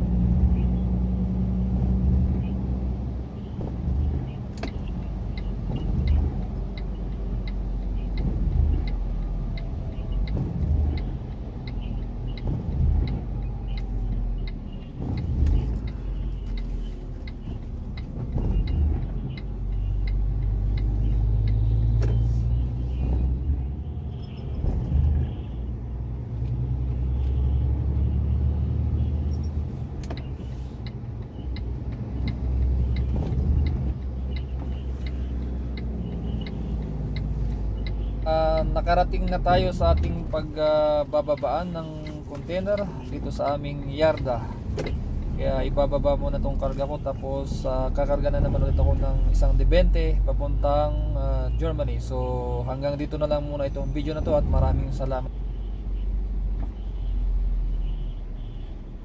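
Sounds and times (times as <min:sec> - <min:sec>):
truck engine rumbling: 0:00.0 - 0:59.0
faint regular ticking: 0:03.0 - 0:22.0, 0:29.0 - 0:48.2.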